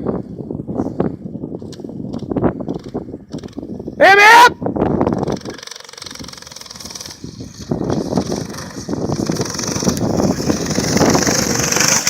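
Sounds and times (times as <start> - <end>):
mini bike engine running: 1.6 - 3.9, 4.9 - 12.0.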